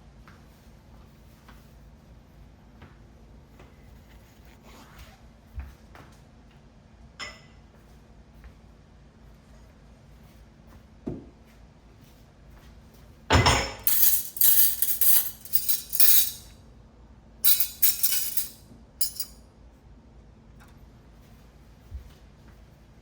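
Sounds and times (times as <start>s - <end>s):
dishes and cutlery clattering: 13.3s - 16.5s, 17.5s - 19.4s.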